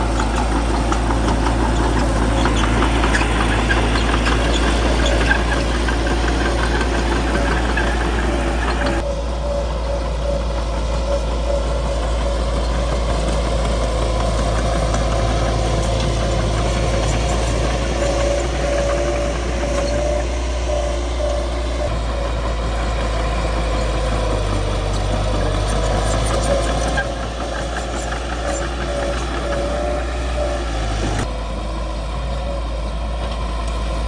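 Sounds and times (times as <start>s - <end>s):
bulldozer diesel engine running: 0.0s - 34.0s.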